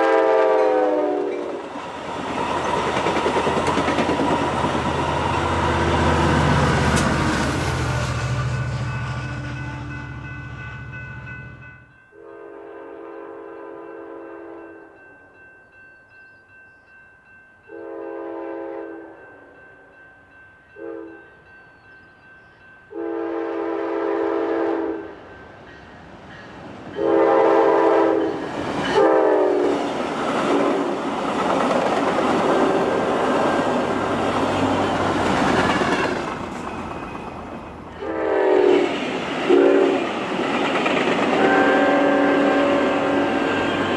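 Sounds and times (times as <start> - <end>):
train horn blasts: 0.0 - 1.6, 12.1 - 14.8, 17.7 - 19.5, 20.8 - 21.3, 22.9 - 25.2, 27.0 - 29.8, 38.0 - 40.1, 41.3 - 43.9
train rumble and rail noise: 0.0 - 12.5, 13.8 - 43.9.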